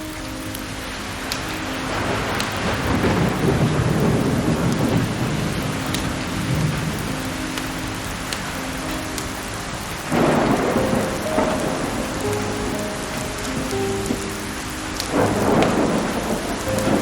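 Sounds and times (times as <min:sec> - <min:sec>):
steady rain: 0:00.0 - 0:17.0
rolling thunder rumble: 0:01.0 - 0:17.0.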